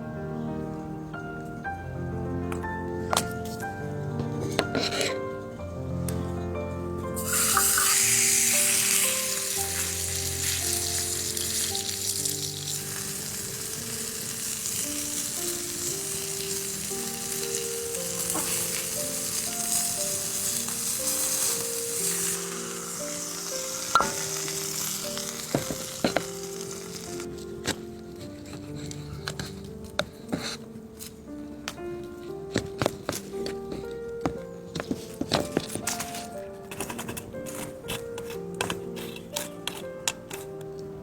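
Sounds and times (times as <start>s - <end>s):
background music: 0.0s - 41.0s
food sizzling in a pan: 7.2s - 27.3s.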